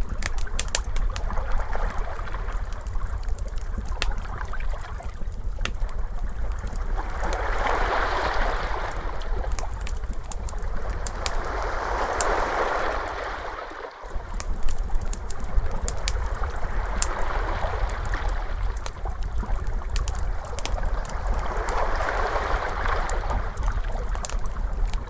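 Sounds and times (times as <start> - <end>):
low steady rumble: 0.0 - 25.0
wood fire crackling: 0.0 - 25.0
ocean waves washing in: 6.8 - 18.9, 20.2 - 24.2.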